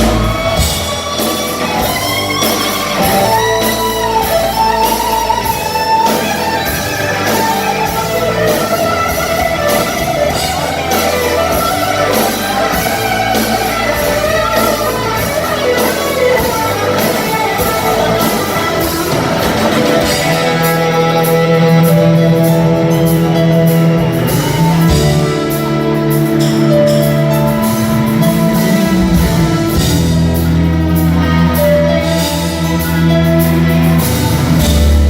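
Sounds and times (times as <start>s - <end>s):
drums keeping a beat: 0.0s - 35.0s
electric guitar bending notes: 0.0s - 35.0s
rock band playing: 0.0s - 35.0s.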